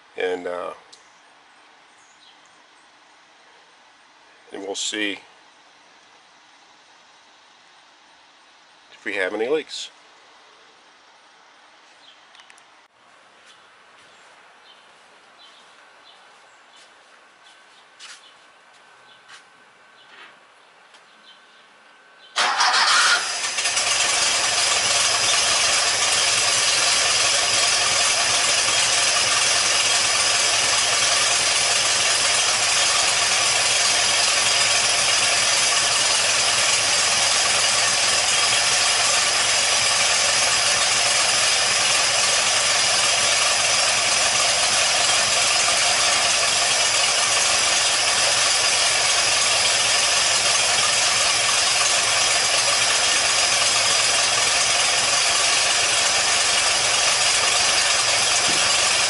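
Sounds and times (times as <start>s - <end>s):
car engine starting and idling: 22.4s - 59.0s.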